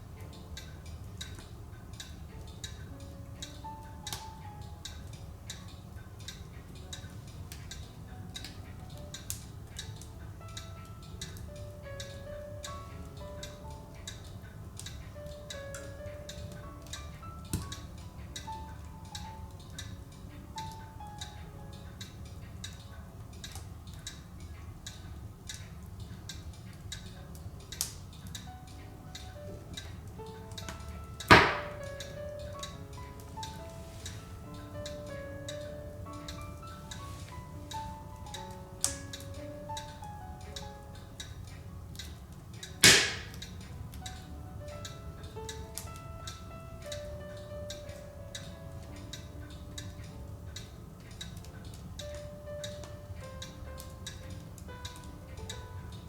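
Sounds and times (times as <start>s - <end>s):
low rumble of fire: 0.0s - 56.0s
wood fire crackling and popping: 0.0s - 56.0s
loud wood snap: 30.6s - 32.0s, 42.8s - 43.5s.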